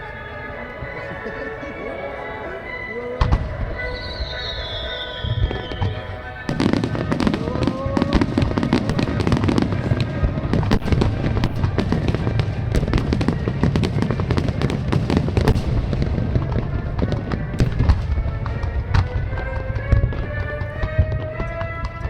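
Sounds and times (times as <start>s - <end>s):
fireworks cracks and pops: 5.6s - 22.0s
low rumble of booms: 8.0s - 21.6s.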